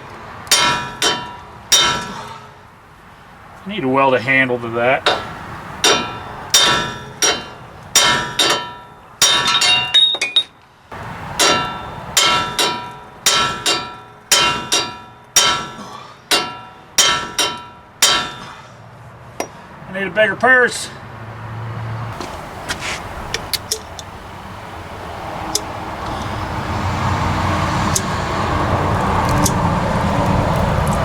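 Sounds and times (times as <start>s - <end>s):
hammer striking metal punch: 0.5s - 2.4s, 5.1s - 10.5s, 11.4s - 18.7s.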